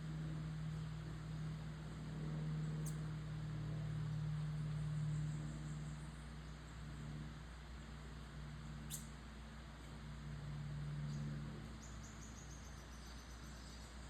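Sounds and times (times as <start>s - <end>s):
low steady hum: 0.0s - 14.0s
small birds chirping: 2.6s - 3.2s, 4.4s - 10.0s, 11.0s - 14.0s.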